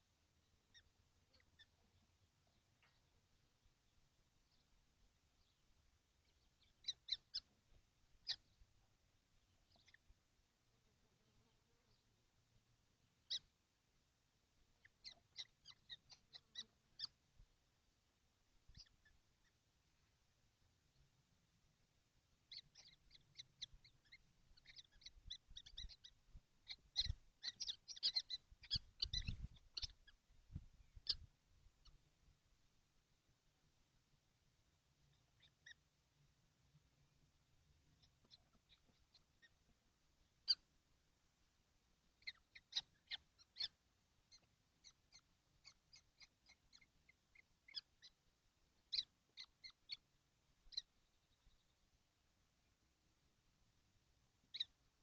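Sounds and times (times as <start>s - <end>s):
nestlings squeaky calls: 0.6s - 1.9s, 6.2s - 8.6s, 9.5s - 10.1s, 13.2s - 13.5s, 14.8s - 17.3s, 18.6s - 19.6s, 22.4s - 32.0s, 35.1s - 35.8s, 37.9s - 40.8s, 42.2s - 51.7s, 54.5s - 54.8s.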